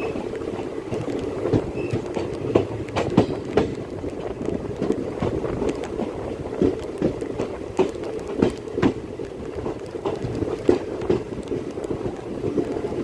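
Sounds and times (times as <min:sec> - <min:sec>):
train wheels rumbling on rail: 0:00.0 - 0:13.0
wheels clacking over rail joints: 0:00.0 - 0:13.0.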